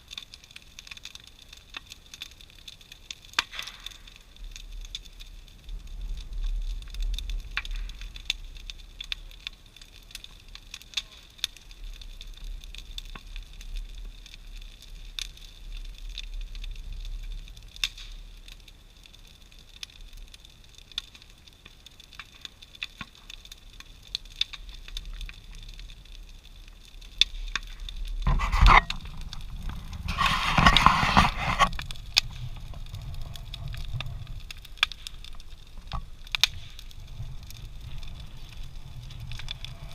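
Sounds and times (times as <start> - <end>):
bonfire crackling and popping: 0.0 - 39.9
low rumble of fire: 0.0 - 39.9
rushing burst of fire: 27.4 - 39.9.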